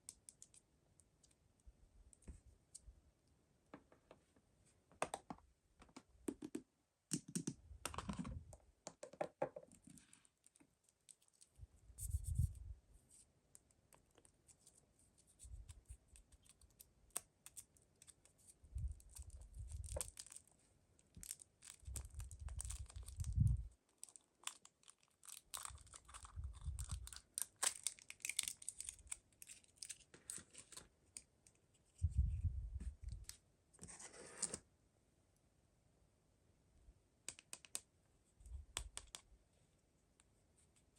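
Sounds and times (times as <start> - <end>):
plastic and foil wrappers tearing: 24.1 - 30.8
small clicks and taps: 37.3 - 37.9, 38.8 - 39.2.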